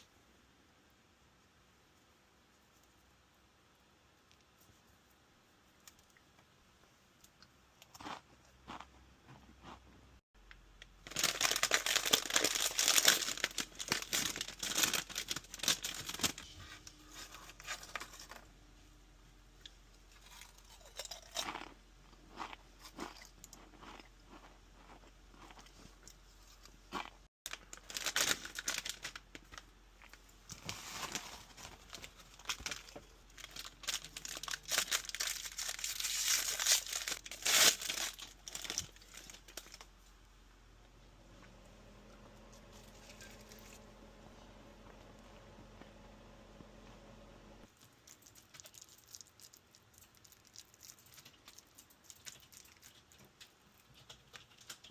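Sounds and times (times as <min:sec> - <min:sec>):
crunchy food being chewed: 0:07.2 - 0:10.0, 0:20.1 - 0:28.1, 0:47.6 - 0:54.9.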